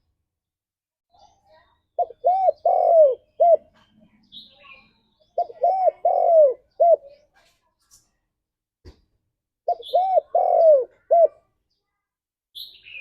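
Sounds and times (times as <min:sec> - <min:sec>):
dove cooing: 0:02.0 - 0:03.8, 0:05.4 - 0:07.2, 0:09.7 - 0:11.5.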